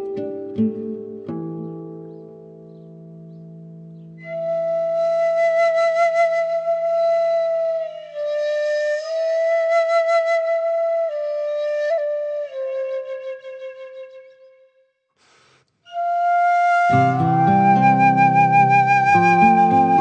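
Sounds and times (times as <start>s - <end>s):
solo flute slow melody: 4.2s - 14.8s, 15.9s - 20.0s.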